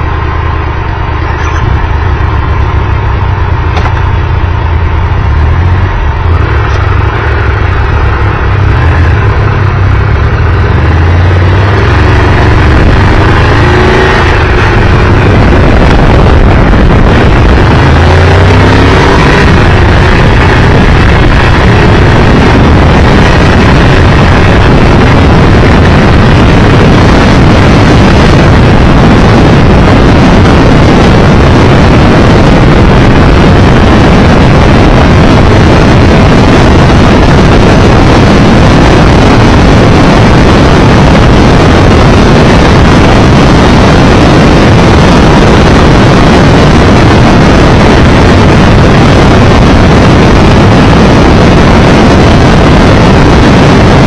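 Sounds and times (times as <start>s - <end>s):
road noise: 0.0s - 54.0s
wind rush on microphone: 0.0s - 54.0s.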